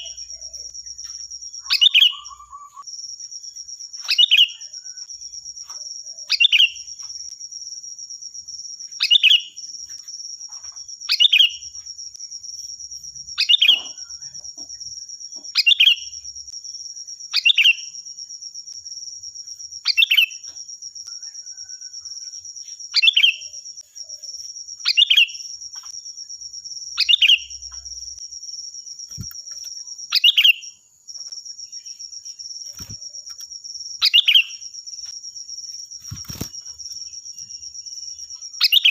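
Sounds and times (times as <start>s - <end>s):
bulbul calls: 1.6s - 2.8s, 30.1s - 30.7s, 34.0s - 34.6s.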